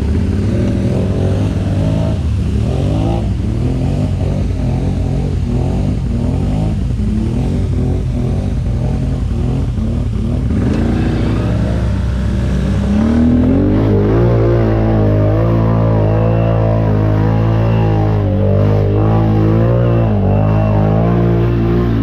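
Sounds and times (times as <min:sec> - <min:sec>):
atv engine revving: 0:00.0 - 0:22.0.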